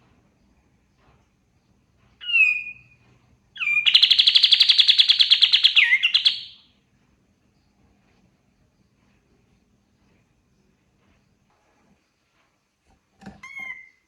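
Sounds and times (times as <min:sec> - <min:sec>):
songbird trill: 0:02.2 - 0:03.0, 0:03.6 - 0:06.6.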